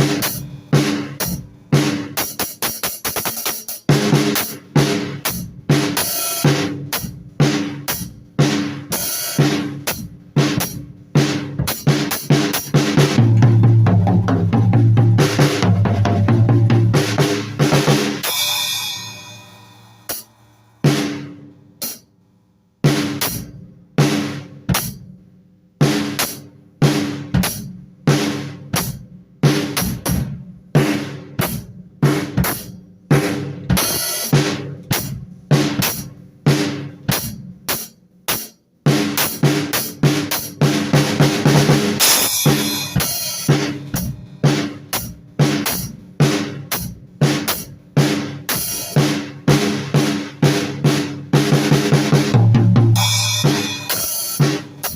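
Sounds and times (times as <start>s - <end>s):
drum kit played freely: 0.0s - 22.1s, 22.7s - 54.9s
cymbal wash: 18.1s - 22.0s.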